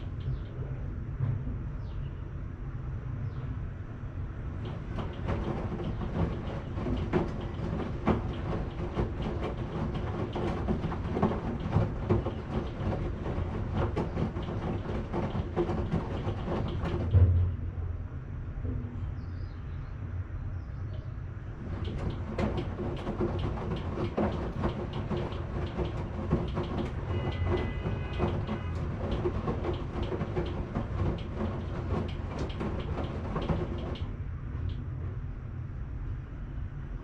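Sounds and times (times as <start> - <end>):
washing machine drum tumbling: 4.4 - 17.7, 21.5 - 34.8
clicks and knocks in drum: 4.6 - 17.4, 21.6 - 34.1.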